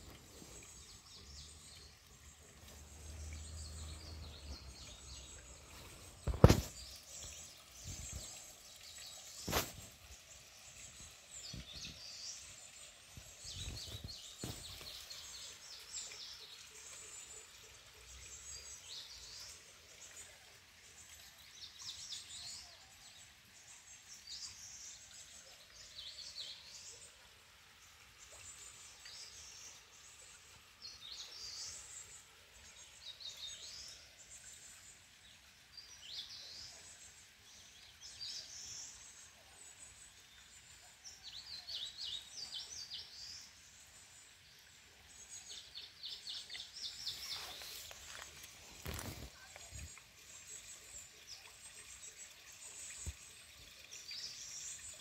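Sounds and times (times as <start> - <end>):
background hiss: 0.0 - 55.0
small birds calling: 45.3 - 55.0.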